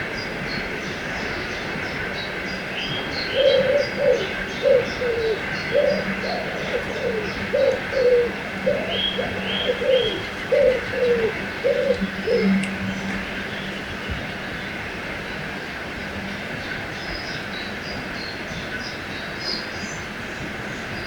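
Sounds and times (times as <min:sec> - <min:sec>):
small birds chirping: 0:00.2 - 0:14.6.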